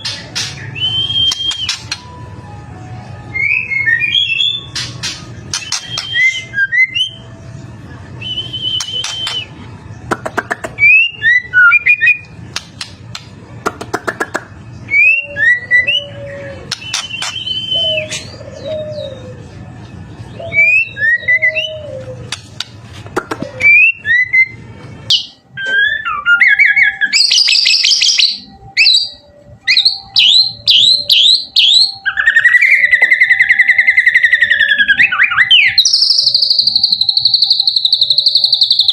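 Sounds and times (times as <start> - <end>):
bird singing whistles and trills: 0.0 - 2.2, 3.3 - 7.3, 8.1 - 9.6, 14.8 - 19.5, 20.3 - 22.7, 23.6 - 38.9.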